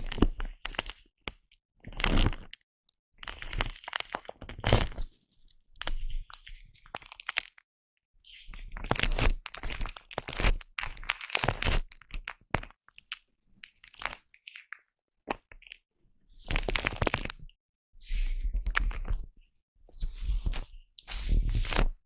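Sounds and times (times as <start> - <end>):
foam rubbing against microphone: 19.9 - 21.9.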